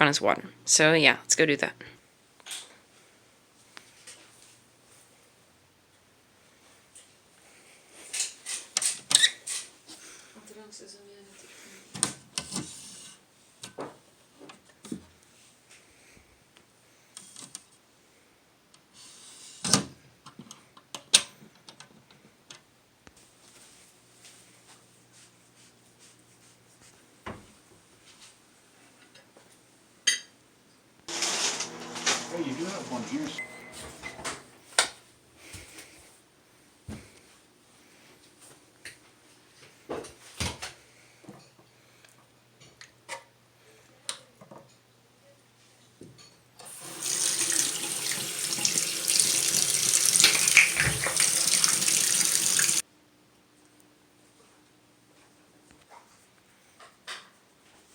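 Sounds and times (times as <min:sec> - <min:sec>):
tap water running into sink: 0:46.7 - 0:52.8.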